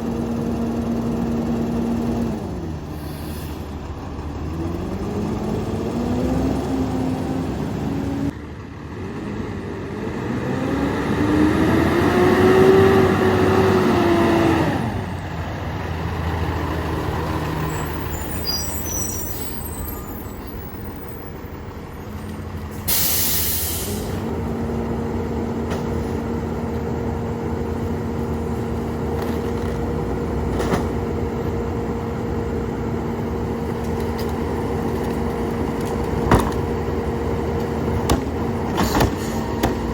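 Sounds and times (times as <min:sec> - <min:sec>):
air brake hiss: 0:02.9 - 0:03.7, 0:22.7 - 0:24.2
garbage truck engine revving: 0:03.6 - 0:08.3, 0:09.0 - 0:21.0.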